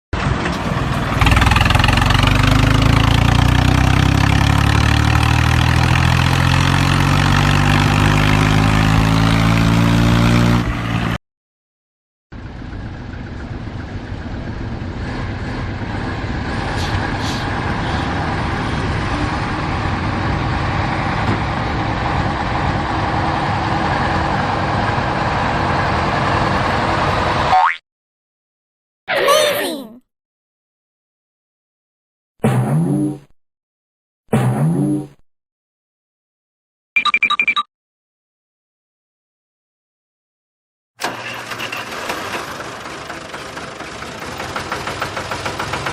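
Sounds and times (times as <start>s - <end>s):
rough engine sound: 0.2s - 11.2s, 12.3s - 27.5s, 41.0s - 45.9s
vehicle engine revving: 0.2s - 11.2s.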